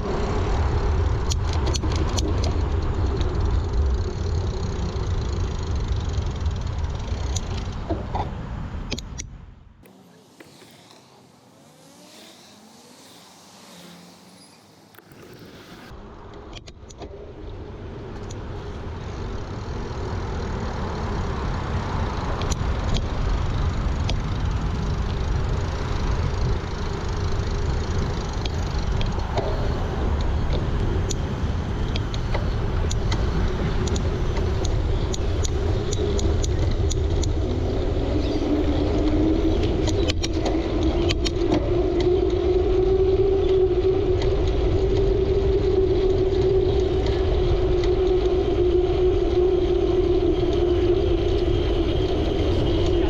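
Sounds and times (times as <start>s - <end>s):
wind and rolling noise: 0.0s - 53.0s
steady hum: 9.7s - 16.0s.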